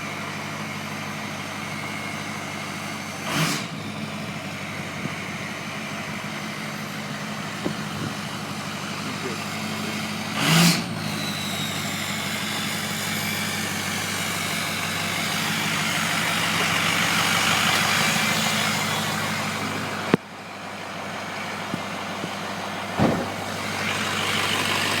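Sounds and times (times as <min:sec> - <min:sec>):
diesel engine running: 0:00.0 - 0:25.0
turbo whistling and hissing: 0:09.0 - 0:20.2.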